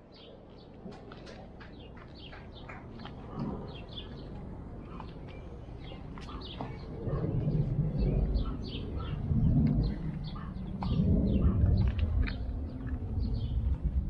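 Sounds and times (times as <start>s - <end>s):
small birds chirping: 0.0s - 14.0s
low rumble: 3.2s - 14.0s.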